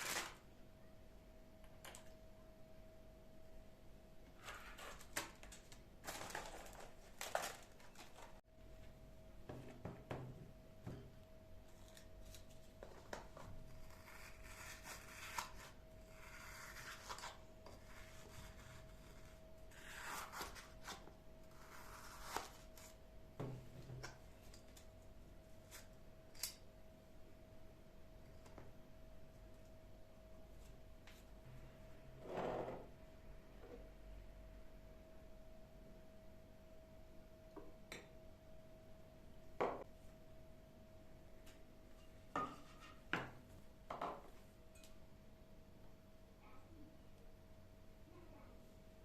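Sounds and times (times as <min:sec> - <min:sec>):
faint steady hum: 0:00.0 - 0:49.0
household items rustling and clicking: 0:04.9 - 0:08.4.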